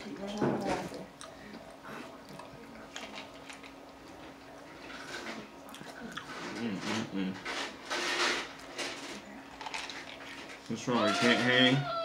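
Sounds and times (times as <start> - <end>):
faint steady hum: 0.0 - 12.0
chewing: 0.1 - 7.0, 8.6 - 10.7.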